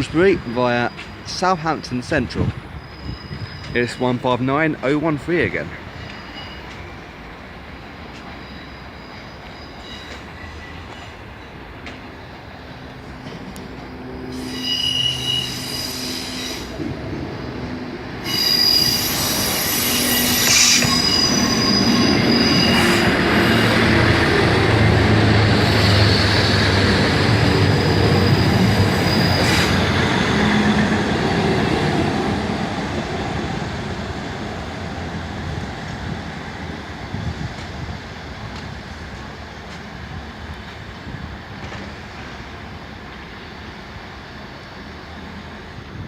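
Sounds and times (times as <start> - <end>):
train diesel engines: 0.0 - 46.0
train wheel and brake squeals: 0.7 - 4.4, 5.9 - 7.0, 8.0 - 12.4, 13.3 - 16.9, 18.2 - 24.1, 25.5 - 31.0.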